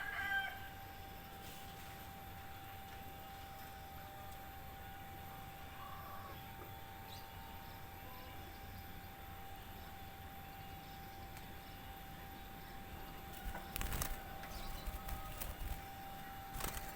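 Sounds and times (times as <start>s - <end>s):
low background hum and rumble: 0.0s - 16.9s
faint bird chirps: 5.5s - 16.9s.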